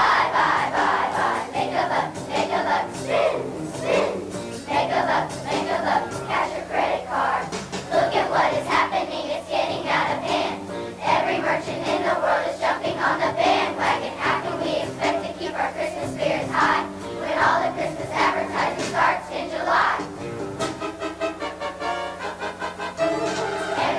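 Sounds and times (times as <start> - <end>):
children's choir singing: 0.0 - 20.3, 23.0 - 23.9
instrumental accompaniment: 20.0 - 23.9.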